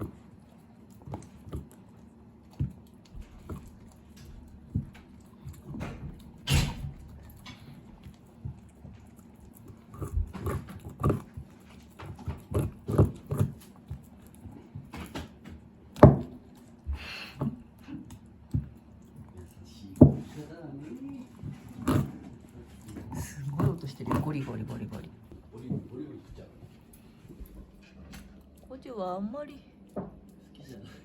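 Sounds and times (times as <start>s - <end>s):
dog crunching a bone: 0.0s - 28.8s, 29.8s - 30.8s.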